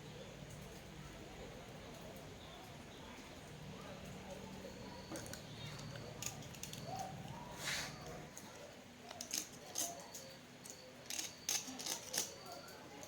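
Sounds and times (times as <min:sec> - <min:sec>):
scrape of small parts: 0:07.5 - 0:08.4, 0:09.1 - 0:12.5.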